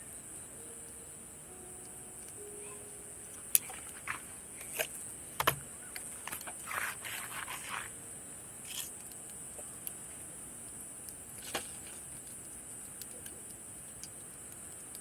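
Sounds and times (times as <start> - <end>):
insects trilling: 0.0 - 15.0
scraping rustle: 3.6 - 8.0.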